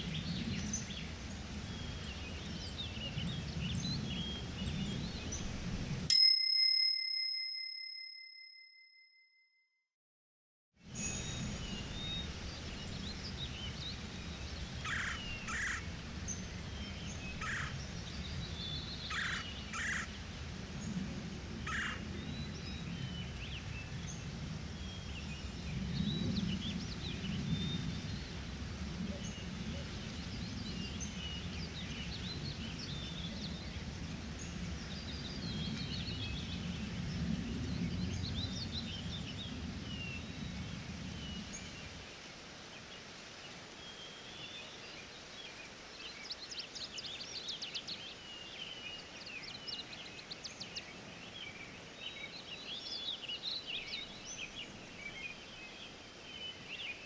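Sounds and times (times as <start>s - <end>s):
birds singing and chirping: 11.1s - 21.0s.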